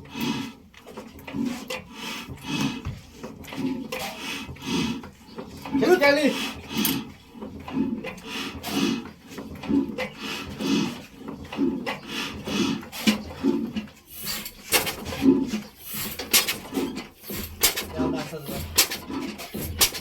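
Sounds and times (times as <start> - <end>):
oil engine puffing: 0.0 - 20.0
metallic clicks and clanks: 13.8 - 20.0.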